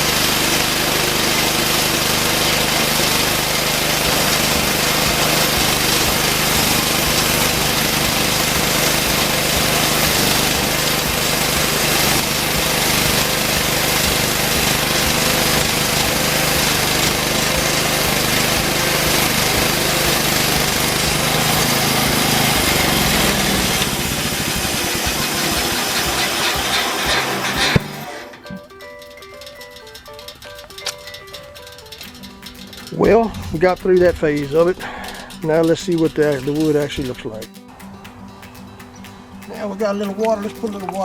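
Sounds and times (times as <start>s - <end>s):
band saw cutting log: 0.0s - 28.7s
gas engine running: 0.0s - 41.0s.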